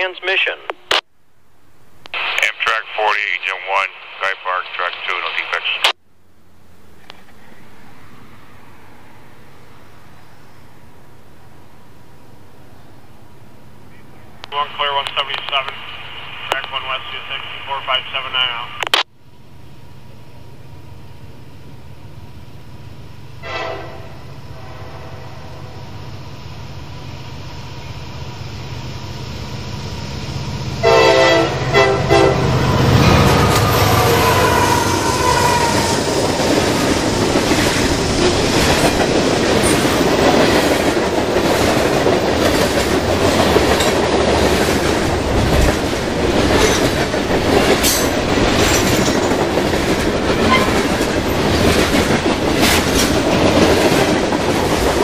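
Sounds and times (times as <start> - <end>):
locomotive rumble: 19.6 - 55.0
train horn: 23.4 - 25.8, 30.8 - 36.0, 50.4 - 50.8
wheels clicking over rail joints: 38.6 - 55.0.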